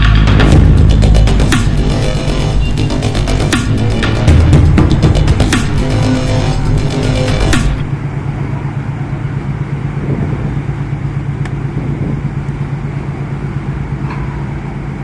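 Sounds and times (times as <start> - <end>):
background music: 0.0 - 8.0
low engine drone: 0.0 - 15.0.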